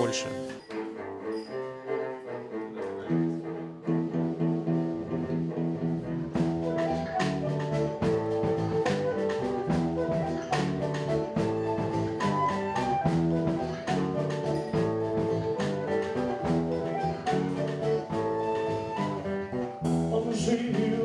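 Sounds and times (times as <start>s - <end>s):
sustained instrumental notes: 0.0s - 0.6s
drum kit beat: 6.4s - 18.9s.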